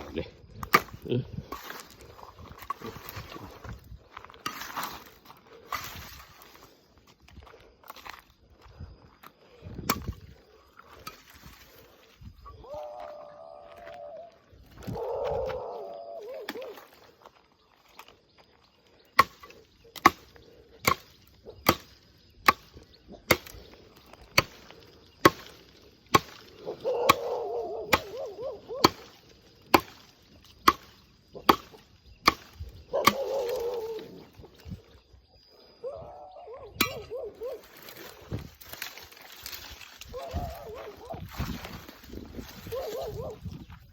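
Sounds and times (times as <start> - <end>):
blade chopping wood: 0.6 - 2.0, 9.8 - 10.2, 19.2 - 23.6, 24.3 - 26.5, 27.1 - 33.7
wavering animal call: 12.4 - 17.0, 26.6 - 29.0, 32.9 - 34.4, 35.8 - 37.7, 40.1 - 41.3.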